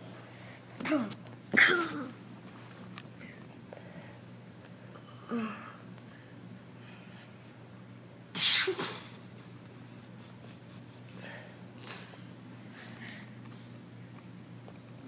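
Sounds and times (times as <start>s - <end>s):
person grunting: 5.1s - 5.8s.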